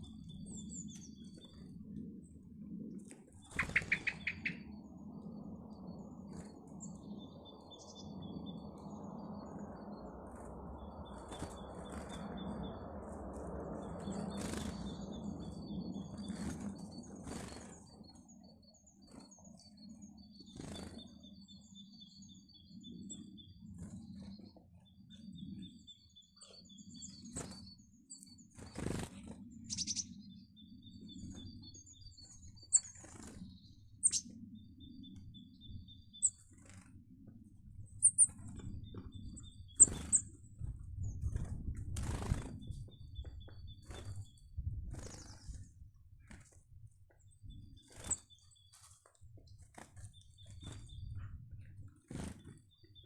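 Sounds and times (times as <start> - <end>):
wings fluttering: 0.0 - 21.6, 22.9 - 25.7, 26.5 - 30.2, 31.0 - 53.0
small birds chirping: 0.0 - 53.0.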